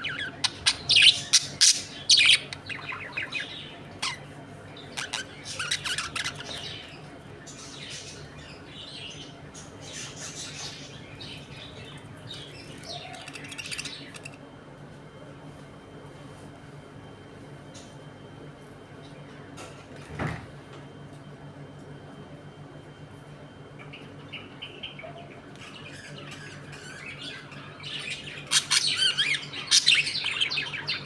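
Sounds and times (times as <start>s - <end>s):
budgerigars chirping and squawking: 0.0s - 11.6s, 12.3s - 14.4s, 24.4s - 31.0s.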